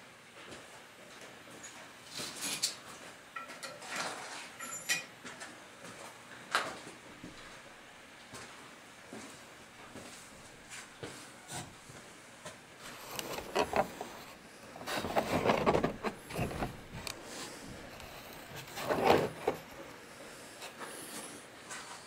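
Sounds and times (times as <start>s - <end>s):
scraping and rustling: 12.8s - 20.0s.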